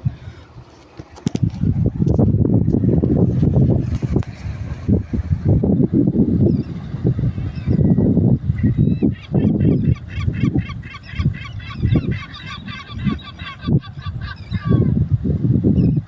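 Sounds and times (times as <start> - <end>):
sea rumbling: 0.0 - 15.9
wind on microphone: 0.0 - 16.0
birds honking: 8.6 - 14.9.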